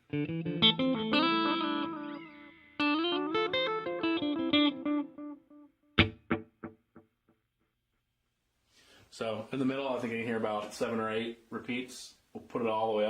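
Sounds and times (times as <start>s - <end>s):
electric guitar with delay echoes: 0.1s - 7.0s.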